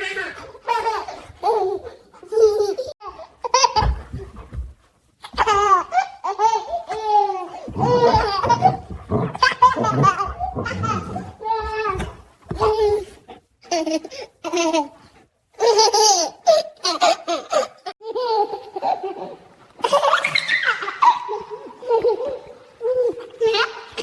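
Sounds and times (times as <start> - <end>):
baby laughing: 5.3 - 13.1, 15.6 - 24.0.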